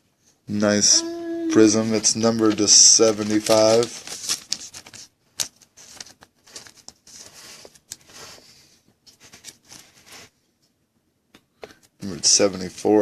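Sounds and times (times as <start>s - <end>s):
card sleeves rustling: 1.5s - 10.3s.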